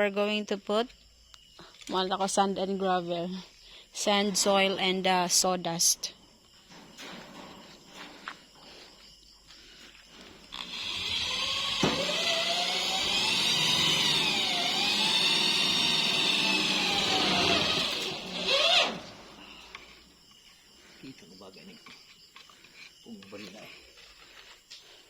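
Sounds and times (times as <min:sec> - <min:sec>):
electric power tool running: 0:10.5 - 0:19.7.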